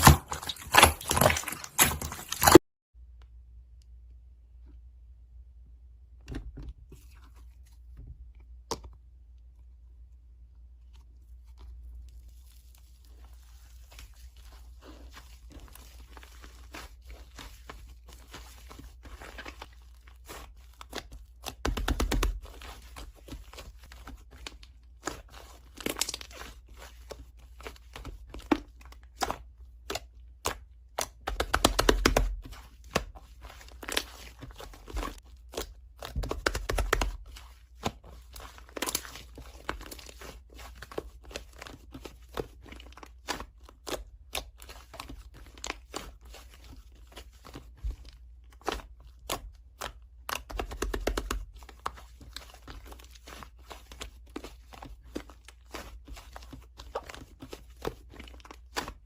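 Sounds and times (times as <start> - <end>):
paper and plastic crinkling: 0.0 - 2.6, 32.2 - 59.0.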